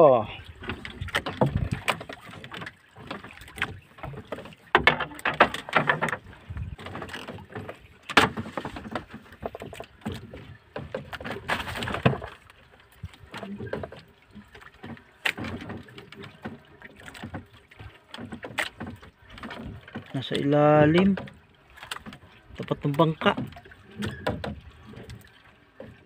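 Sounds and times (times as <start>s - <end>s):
fishing gear knocking on wooden boat: 0.6s - 12.4s, 23.2s - 25.2s.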